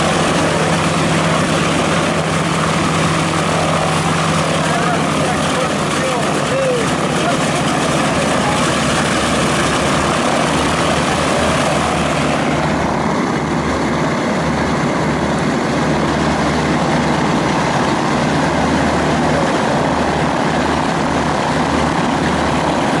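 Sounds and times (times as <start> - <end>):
propeller aircraft engines running: 0.0 - 23.0.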